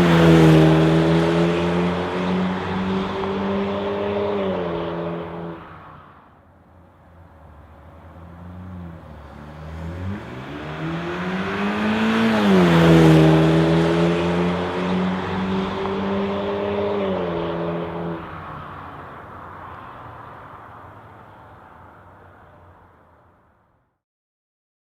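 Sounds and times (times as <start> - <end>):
car engine accelerating: 0.0 - 6.0, 7.3 - 19.6.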